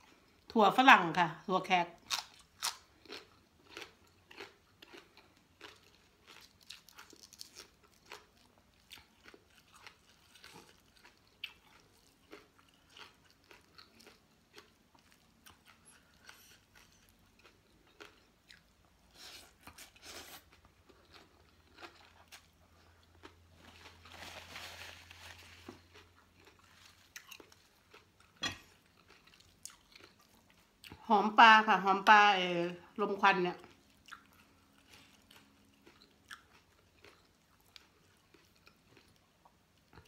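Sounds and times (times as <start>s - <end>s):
crunching raw vegetables: 2.0s - 31.1s.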